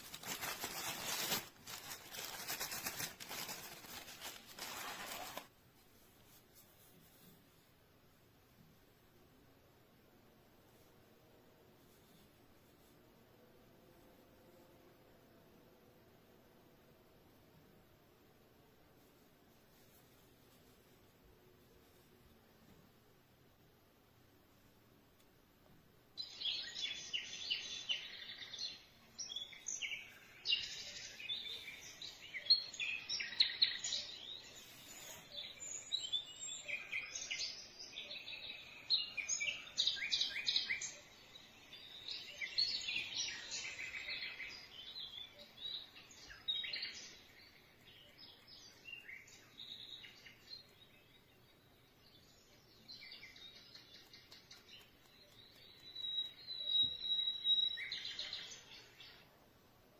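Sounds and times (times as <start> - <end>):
birdsong chirps and twitters: 26.2 - 59.4.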